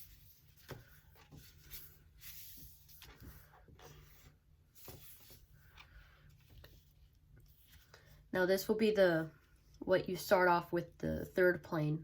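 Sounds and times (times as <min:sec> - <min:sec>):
paper rustling and creasing: 0:00.0 - 0:08.2.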